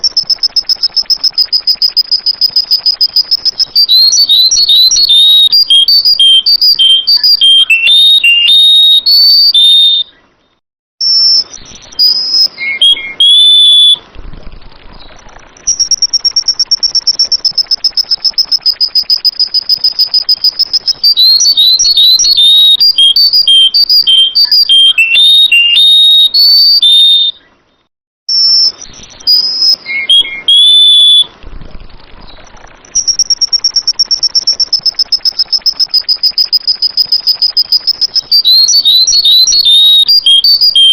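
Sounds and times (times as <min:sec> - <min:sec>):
fast-pulsing high trill: 0:00.0 - 0:09.0, 0:15.6 - 0:26.3, 0:32.8 - 0:40.9
bulbul whistled phrases: 0:00.0 - 0:10.2, 0:11.0 - 0:14.1, 0:15.0 - 0:27.5, 0:28.3 - 0:31.4, 0:32.4 - 0:40.9.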